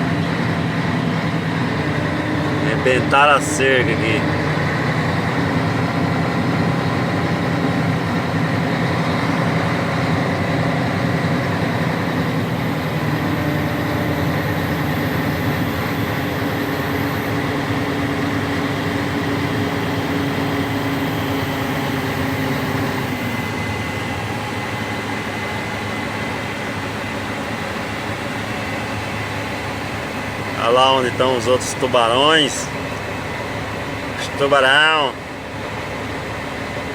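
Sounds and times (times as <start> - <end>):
diesel truck engine running: 0.0 - 36.9.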